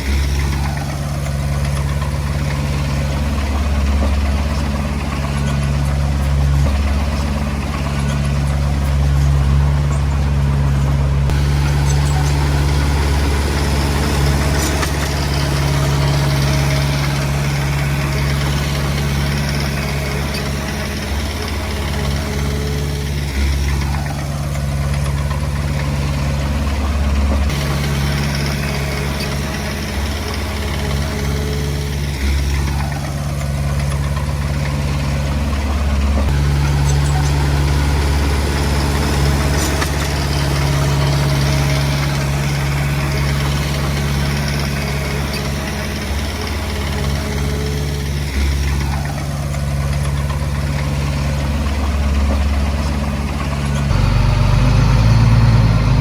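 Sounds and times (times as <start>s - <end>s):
faint falling whines: 0.0s - 56.0s
heavy diesel engine droning: 0.0s - 56.0s.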